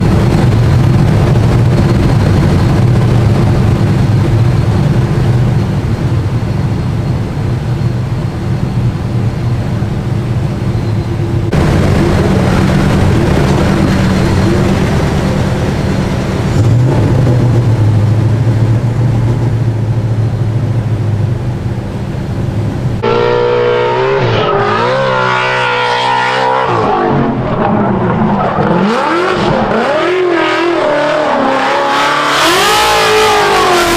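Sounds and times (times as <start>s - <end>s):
car engine revving: 11.0s - 33.9s.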